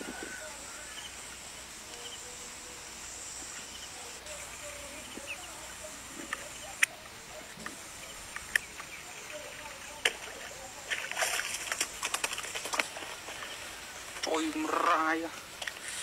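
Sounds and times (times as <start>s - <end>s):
faint bird chirps: 0.0s - 1.2s, 3.5s - 10.6s
steady outdoor hiss: 0.0s - 16.0s.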